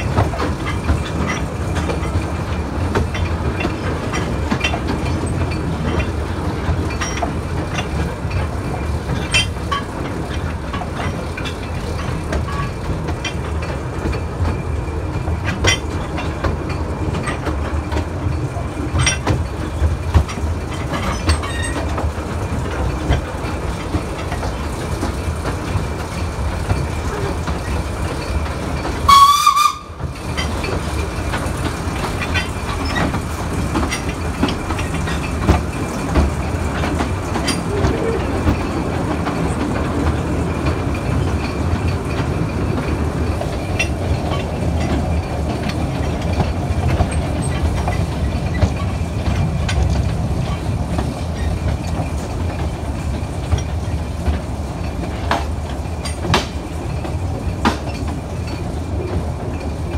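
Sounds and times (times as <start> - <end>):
train rumbling on rails: 0.0 - 59.9
wheels clicking and rattling: 0.0 - 59.9
locomotive horn blast: 29.1 - 30.0.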